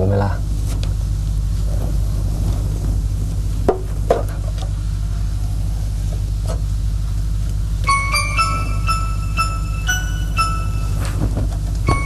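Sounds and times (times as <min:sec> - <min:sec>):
steady low hum: 0:00.0 - 0:12.0
chiming music notes: 0:07.9 - 0:12.0.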